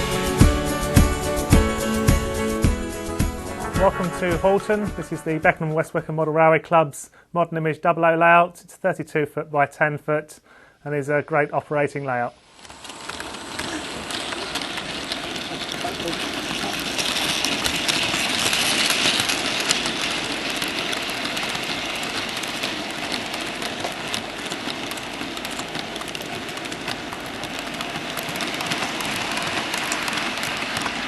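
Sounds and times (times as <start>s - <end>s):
model trains whirring: 0.0s - 5.8s, 10.1s - 31.0s
wheels clicking over rail joints: 12.4s - 31.0s.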